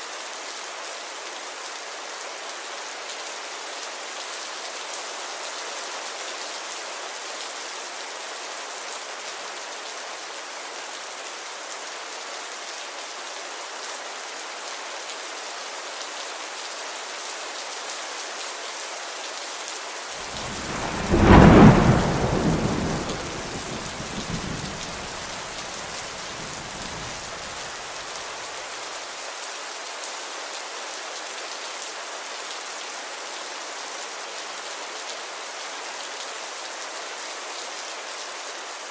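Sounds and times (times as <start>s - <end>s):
thunder clap: 20.2s - 27.7s
rainfall hissing: 20.2s - 28.5s.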